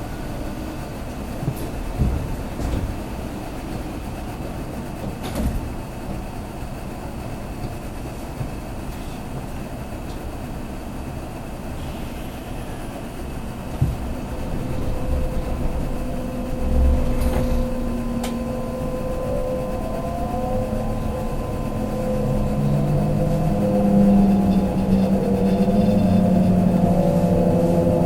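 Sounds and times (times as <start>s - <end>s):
train wheels rumbling on rails: 0.0s - 28.0s
electric motor whine: 13.6s - 28.0s.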